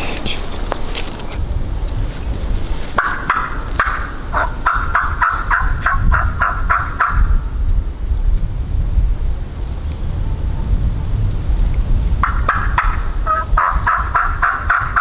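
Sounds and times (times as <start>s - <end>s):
wild turkey calling: 0.0s - 1.4s, 2.9s - 7.3s, 12.2s - 15.0s
low rumble: 0.0s - 13.9s.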